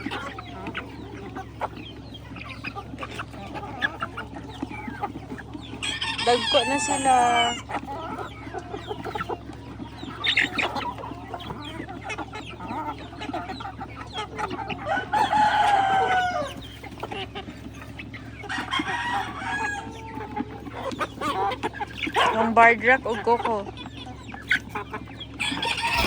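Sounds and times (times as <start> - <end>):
chickens clucking: 0.0 - 26.0
rooster crowing: 5.8 - 7.6, 14.8 - 16.6, 18.5 - 19.9, 25.4 - 26.0.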